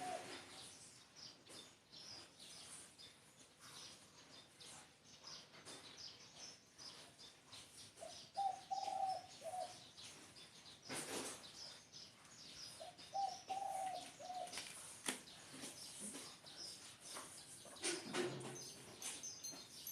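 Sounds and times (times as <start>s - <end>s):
dove cooing: 0.0s - 0.6s, 8.1s - 9.8s, 12.8s - 14.8s
small birds chirping: 0.0s - 19.9s.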